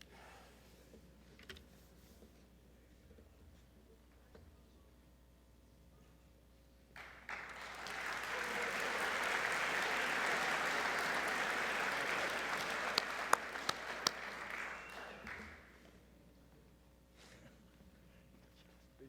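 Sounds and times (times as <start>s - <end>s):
audience applauding: 7.0s - 15.7s.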